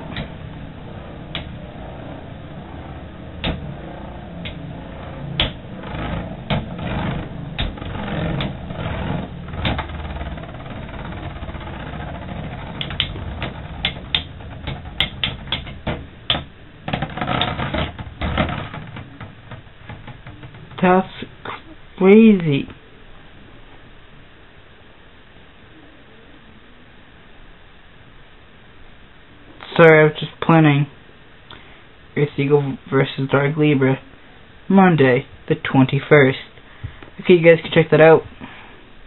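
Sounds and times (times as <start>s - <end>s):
spinning tops whirring: 0.0s - 21.5s.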